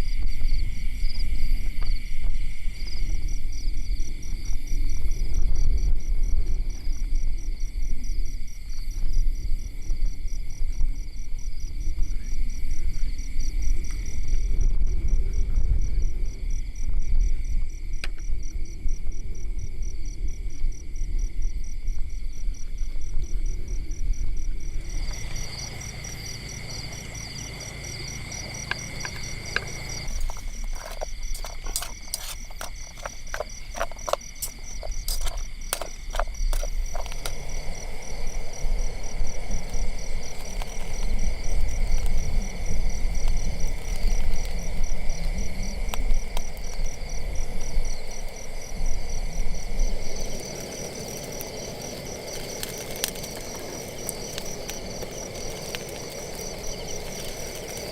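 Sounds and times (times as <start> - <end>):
crickets trilling: 0.0 - 57.9
lower steady insect tone: 0.0 - 57.9
low uneven rumble: 22.6 - 57.9
sharp clicks and crackles: 28.4 - 37.5.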